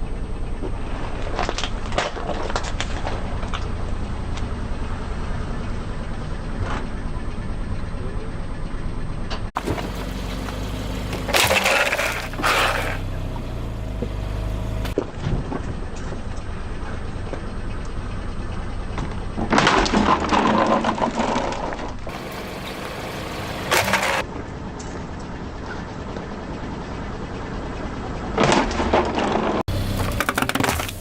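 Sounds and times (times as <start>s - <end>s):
car engine humming: 0.0s - 15.0s, 15.6s - 19.6s, 22.0s - 31.0s
tyre crushing crunchy objects: 9.6s - 14.2s, 28.5s - 31.0s.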